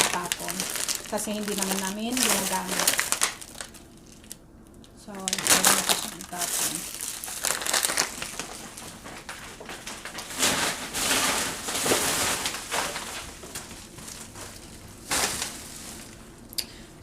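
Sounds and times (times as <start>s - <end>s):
plastic packaging crinkling: 0.0s - 16.4s.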